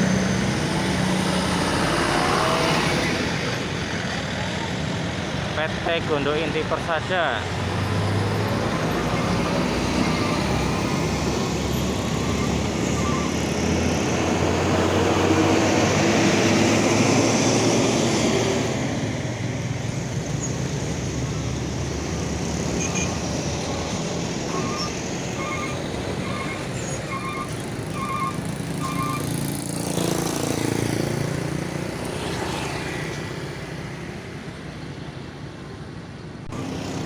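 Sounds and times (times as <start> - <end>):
large truck driving past: 7.3 - 33.6.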